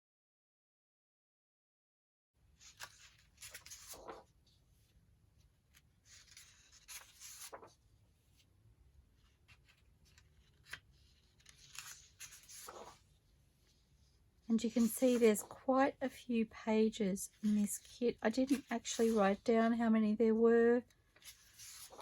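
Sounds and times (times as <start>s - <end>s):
paper rustling: 2.5s - 8.5s, 9.1s - 14.0s, 14.6s - 15.6s, 17.3s - 19.4s, 21.1s - 22.0s.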